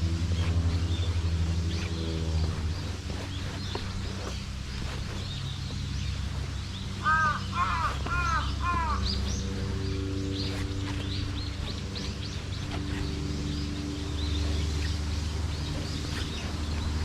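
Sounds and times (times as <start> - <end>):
small birds chirping faintly: 0.0 - 17.0
steady low rumble: 0.0 - 17.0
crow cawing: 7.0 - 9.1.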